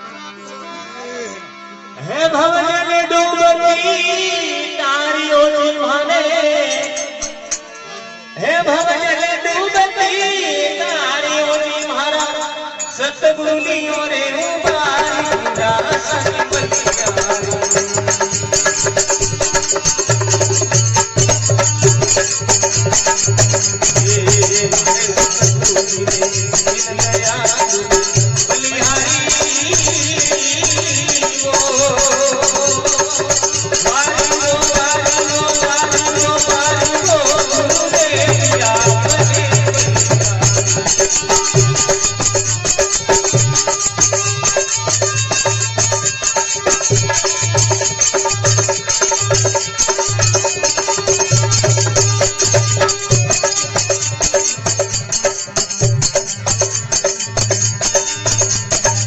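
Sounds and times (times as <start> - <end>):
drum beat with percussion: 14.4 - 59.0.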